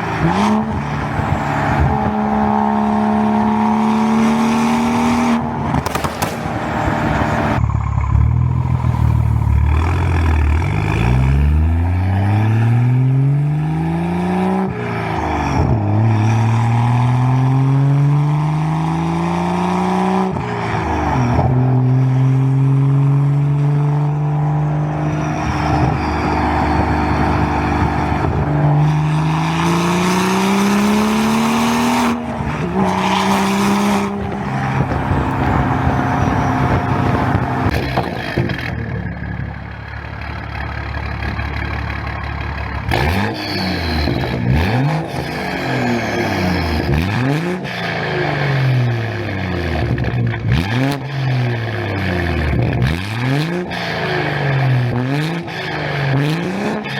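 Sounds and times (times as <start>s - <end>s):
car engine accelerating through gears: 0.0s - 39.4s, 42.8s - 56.9s.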